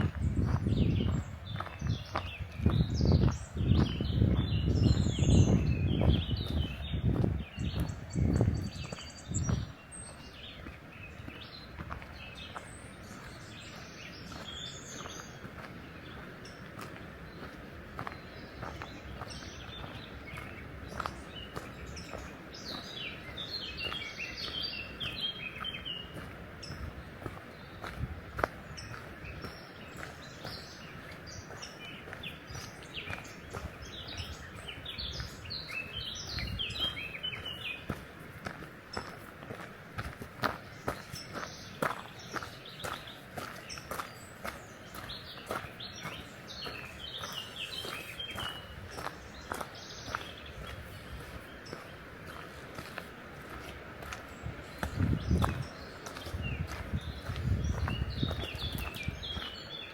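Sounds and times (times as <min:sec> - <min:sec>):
footsteps on a path: 0:00.0 - 0:59.9
small birds chirping and singing: 0:00.0 - 0:59.9.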